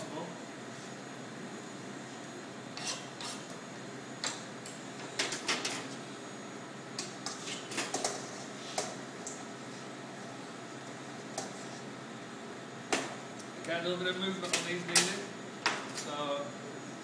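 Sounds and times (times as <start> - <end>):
knife scraping melon rind: 2.8 - 3.5.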